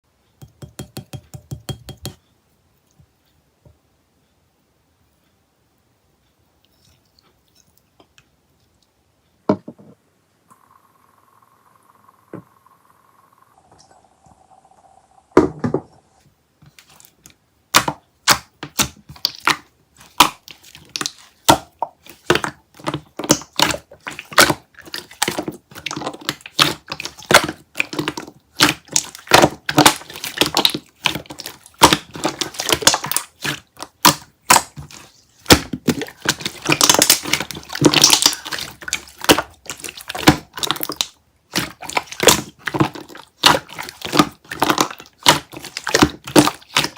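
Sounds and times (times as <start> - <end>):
slime squishing with air pops: 17.7 - 46.9.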